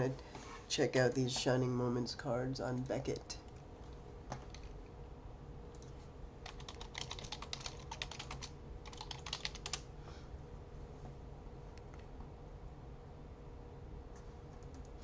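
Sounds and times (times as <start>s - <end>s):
faint steady hum: 0.0s - 15.0s
computer keyboard typing: 4.3s - 4.7s, 5.7s - 9.8s.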